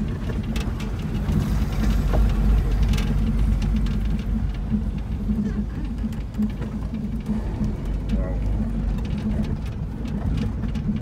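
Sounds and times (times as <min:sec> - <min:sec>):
engine and tyres rumbling: 0:00.0 - 0:11.0
vehicle knocks and rattles: 0:00.0 - 0:11.0.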